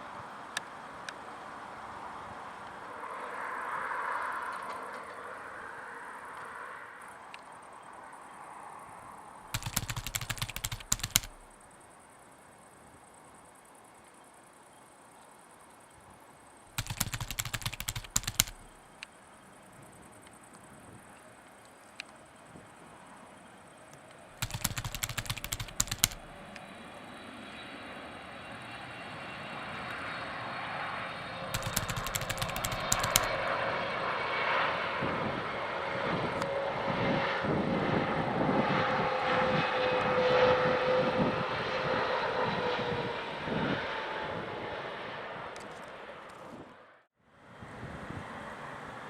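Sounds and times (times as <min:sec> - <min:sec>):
jet engines whining and roaring: 0:25.4 - 0:46.4.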